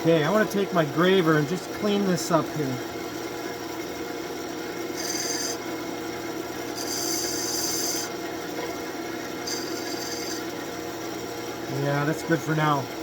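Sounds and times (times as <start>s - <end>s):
high scraping of tool on wood: 5.0s - 5.6s, 6.8s - 8.1s, 9.5s - 10.5s
lathe tool hissing on wood: 5.0s - 5.6s, 6.8s - 8.1s, 9.4s - 10.5s.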